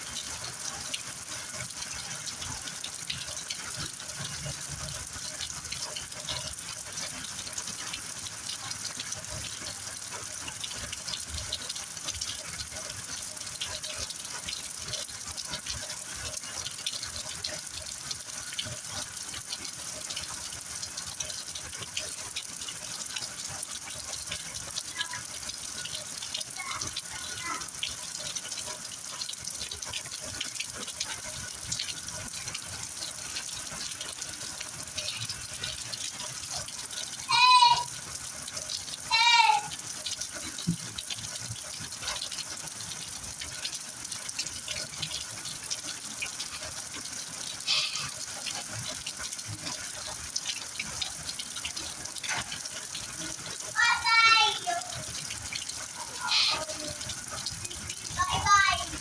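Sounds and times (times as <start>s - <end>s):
heavy rain: 13.6s - 28.0s, 29.7s - 42.2s, 42.8s - 59.0s
loud high-pitched calls: 47.7s - 48.2s.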